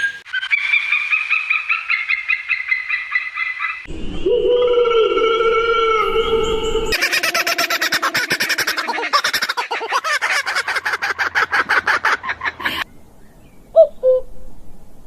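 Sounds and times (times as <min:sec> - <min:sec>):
flock of birds chattering: 0:06.0 - 0:12.9.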